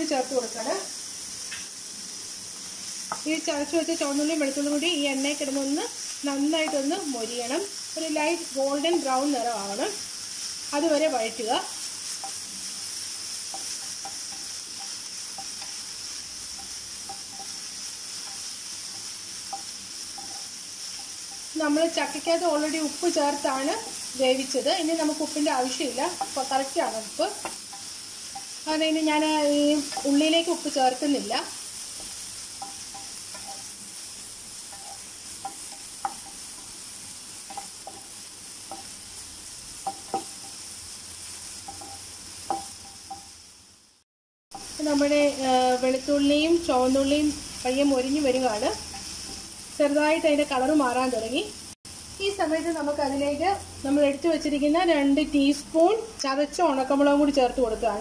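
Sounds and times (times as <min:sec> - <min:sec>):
garlic sizzling in oil: 0:00.0 - 0:58.0
wooden spatula stirring: 0:13.4 - 0:21.6, 0:25.4 - 0:39.0, 0:39.8 - 0:40.7.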